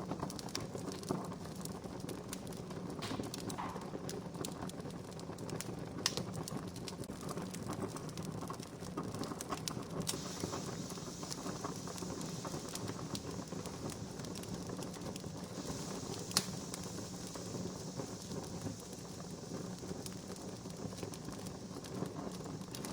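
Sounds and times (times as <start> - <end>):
campfire crackling: 0.0 - 22.9
soft hiss: 10.0 - 22.9.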